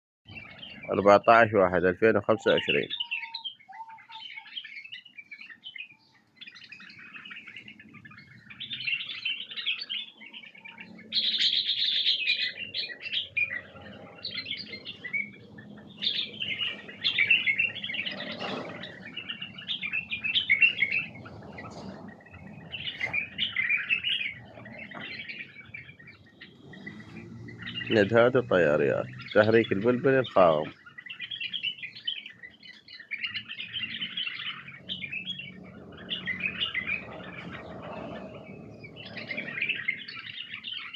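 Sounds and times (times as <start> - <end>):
bulbuls chirping: 0.3 - 40.9.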